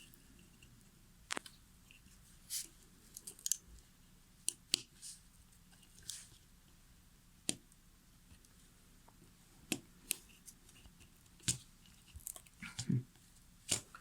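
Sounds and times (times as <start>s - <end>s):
circuit board parts clicking: 3.1s - 3.6s.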